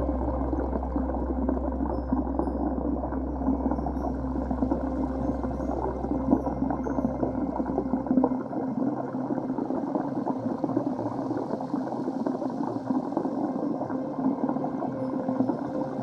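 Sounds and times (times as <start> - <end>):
deep rumble: 0.0 - 9.6
faint steady hum: 0.0 - 16.0
water gurgling and churning: 0.0 - 16.0.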